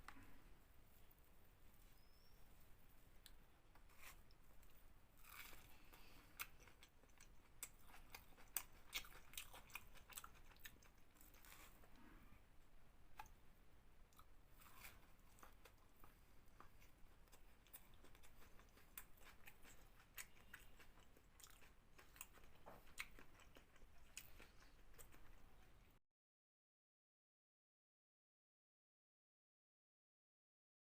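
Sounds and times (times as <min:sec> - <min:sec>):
person chewing food: 0:03.2 - 0:12.2, 0:13.1 - 0:13.4, 0:14.1 - 0:26.0.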